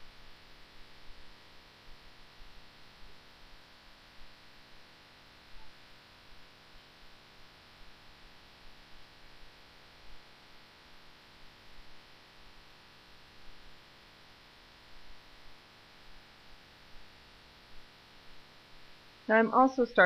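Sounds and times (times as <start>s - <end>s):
steady hiss and hum: 0.0s - 20.0s.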